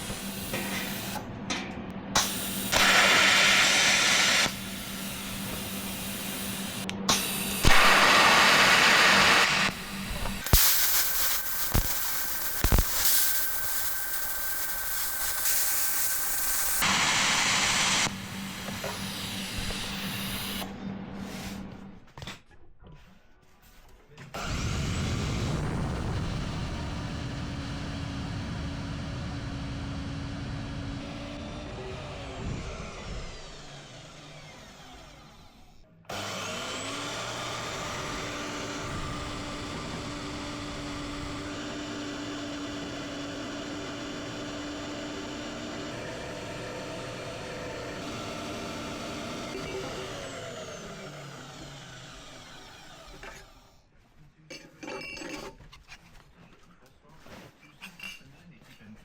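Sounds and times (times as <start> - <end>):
electric power tool running: 0.0 - 1.3, 2.2 - 20.8, 24.4 - 53.8.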